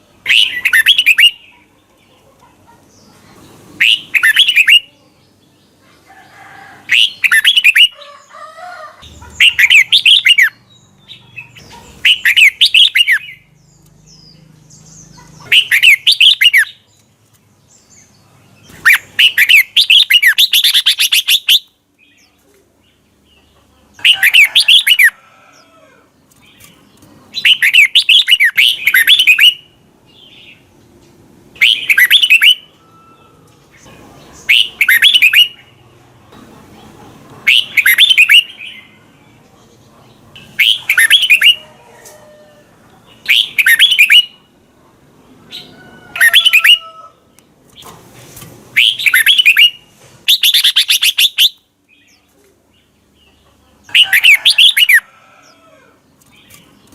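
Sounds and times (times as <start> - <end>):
bird singing whistled phrases: 0.3 - 1.4, 31.6 - 33.2, 34.5 - 35.6, 37.5 - 38.5, 40.6 - 41.6, 43.3 - 44.4, 48.8 - 51.6.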